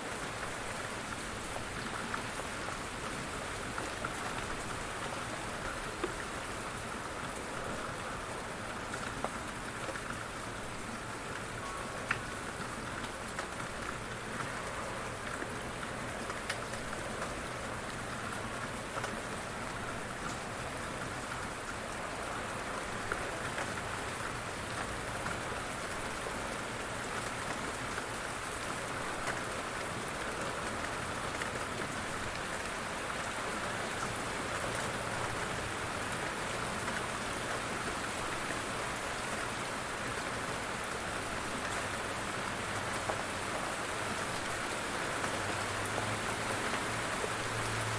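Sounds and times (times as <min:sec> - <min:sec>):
steady rain falling: 0:00.0 - 0:47.9
raindrop ticks: 0:05.6 - 0:06.3, 0:11.3 - 0:21.9.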